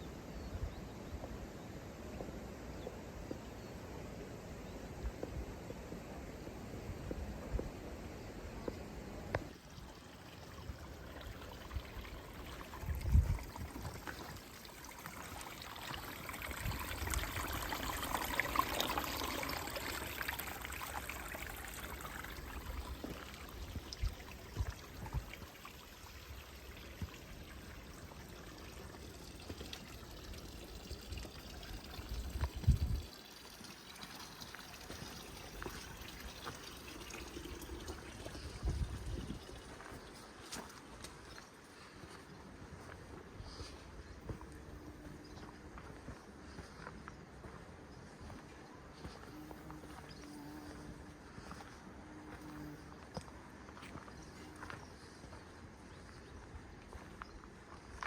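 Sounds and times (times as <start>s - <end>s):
water trickling: 9.4s - 42.2s.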